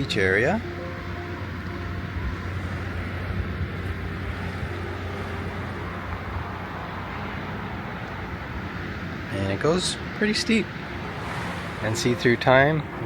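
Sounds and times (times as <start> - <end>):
distant ocean surf: 0.0 - 13.0
wind on microphone: 2.0 - 8.4, 10.8 - 13.0.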